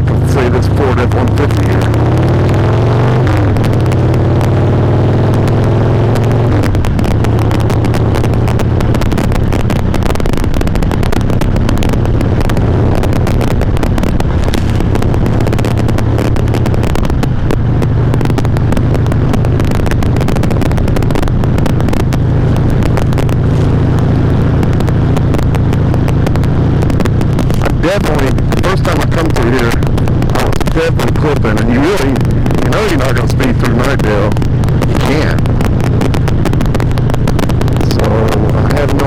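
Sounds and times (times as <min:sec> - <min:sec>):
crackly distortion: 0:00.0 - 0:39.0
motorcycle engine and exhaust: 0:00.0 - 0:39.0.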